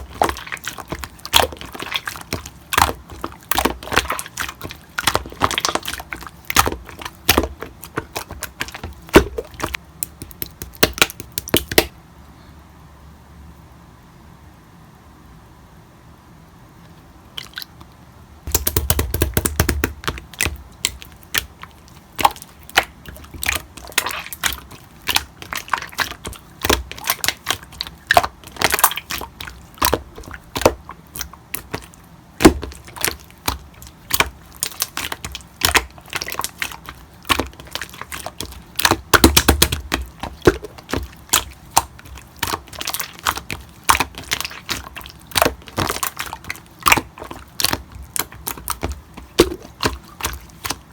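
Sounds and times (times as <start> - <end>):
slime squishes: 0.0 - 11.9, 17.3 - 50.9
slime crackling pops and clicks: 18.5 - 21.5.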